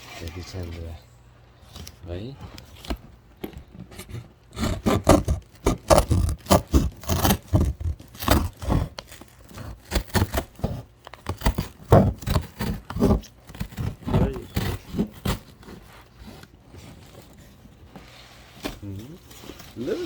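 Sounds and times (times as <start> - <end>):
cardboard box being cut and torn: 3.9 - 17.6.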